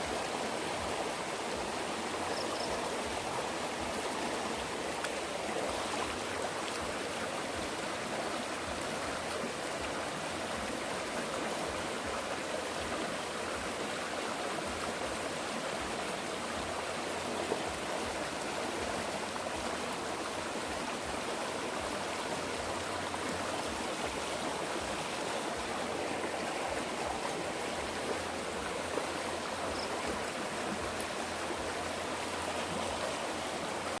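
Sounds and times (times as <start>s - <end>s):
running water: 0.0s - 34.0s.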